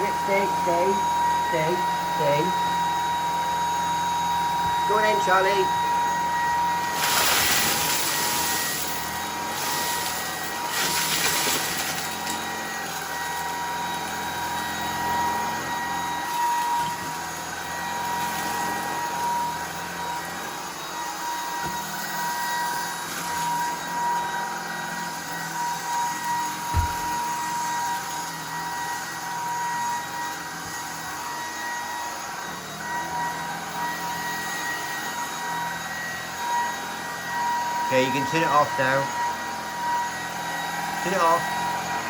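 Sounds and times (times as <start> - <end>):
stick vacuum motor whine: 0.0 - 42.0
vacuum sucking up debris: 6.3 - 12.6.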